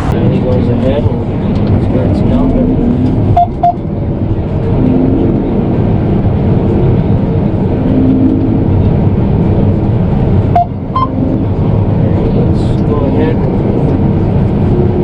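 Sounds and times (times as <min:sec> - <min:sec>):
combine harvester engine drone: 0:00.0 - 0:15.0
short beeps: 0:03.4 - 0:03.8, 0:10.6 - 0:11.2.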